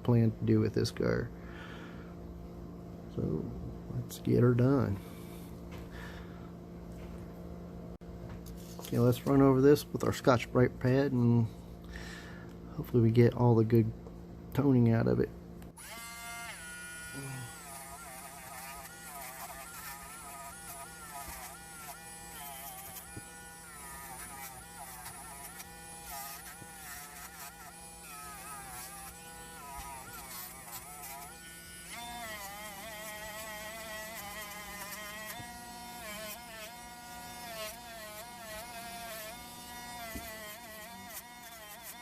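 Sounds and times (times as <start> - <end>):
rotary tool buzzing on metal: 4.5 - 6.2, 15.7 - 42.0.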